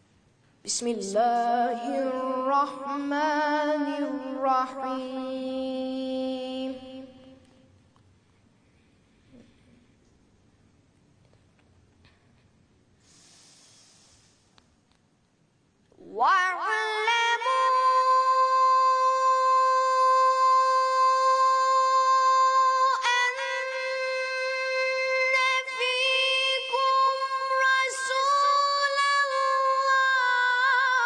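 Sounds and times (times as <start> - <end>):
high voice chanting melodically: 0.7 - 7.5, 16.0 - 31.0.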